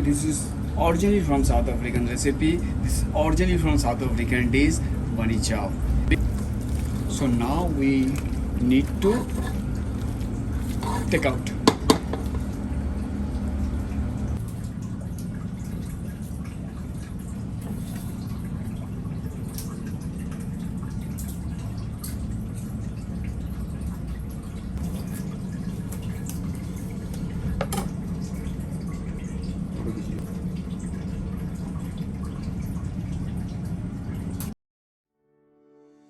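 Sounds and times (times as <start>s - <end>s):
steady low hum: 0.0s - 34.6s
wet scooping and dripping: 6.0s - 12.6s.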